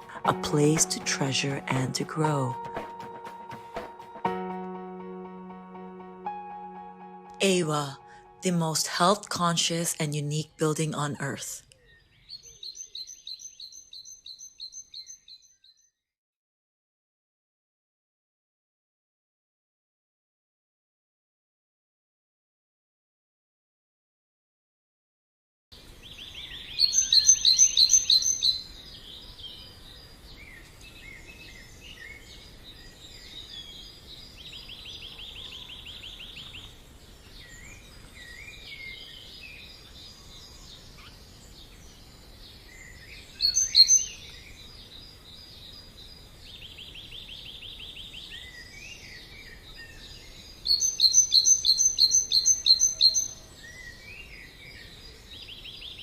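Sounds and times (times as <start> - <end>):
bird chirps: 11.6 - 15.9, 26.2 - 29.8, 42.8 - 45.9, 46.6 - 56.0.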